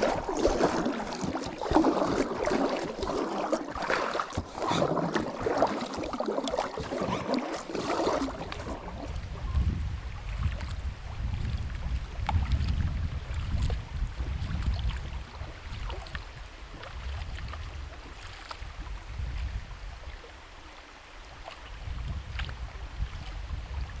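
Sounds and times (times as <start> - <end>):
wind buffeting microphone: 8.0 - 20.1, 21.7 - 24.0.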